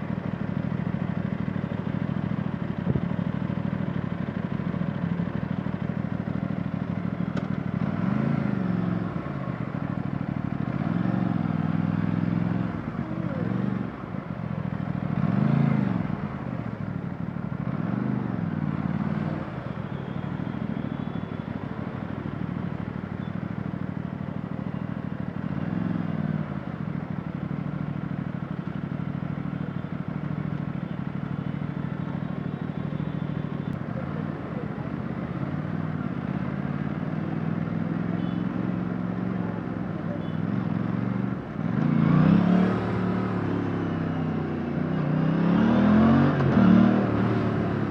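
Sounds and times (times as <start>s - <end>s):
motorcycle engine revving: 6.5s - 16.8s, 35.0s - 47.9s.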